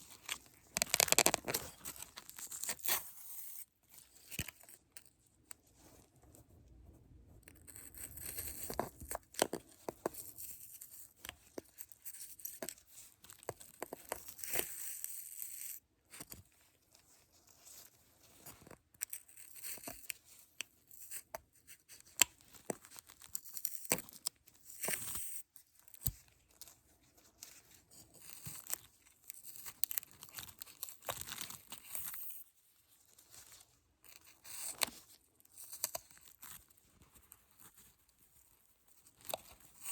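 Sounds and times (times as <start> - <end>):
plastic or paper crinkling: 0.0 - 2.9.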